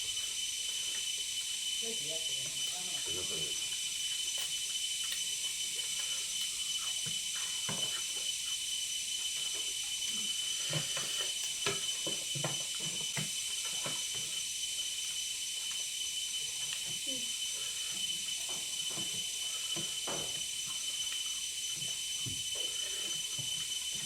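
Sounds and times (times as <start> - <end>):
faint thin whine: 0.0 - 24.0
people chewing food: 0.0 - 24.0.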